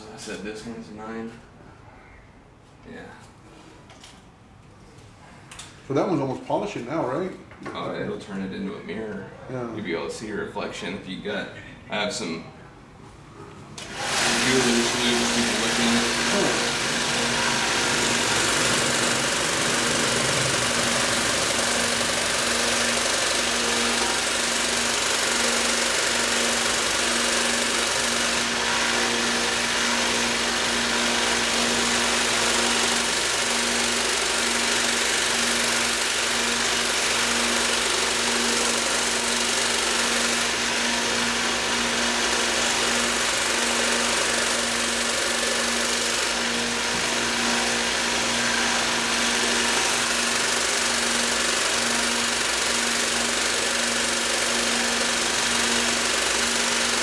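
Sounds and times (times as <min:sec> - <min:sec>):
belt grinder motor hum: 0:13.8 - 0:57.0.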